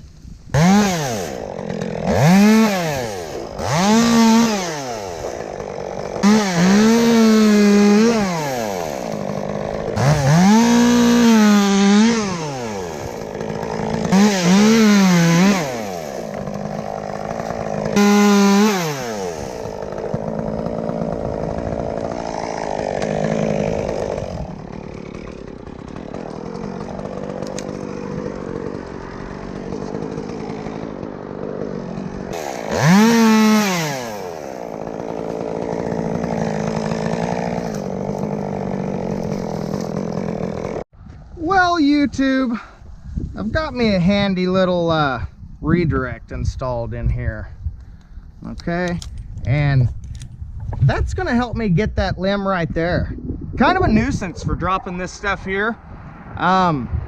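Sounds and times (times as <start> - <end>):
chainsaw revving and cutting: 0.1 - 40.9.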